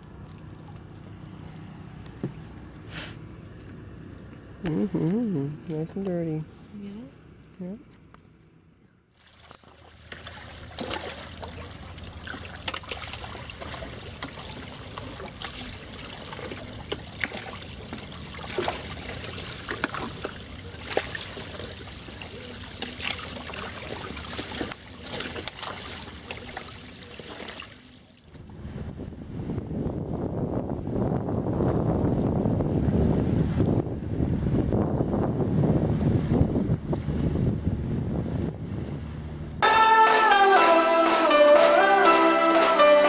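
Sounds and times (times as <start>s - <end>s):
water trickling and splashing: 0.0s - 2.9s, 9.1s - 28.5s.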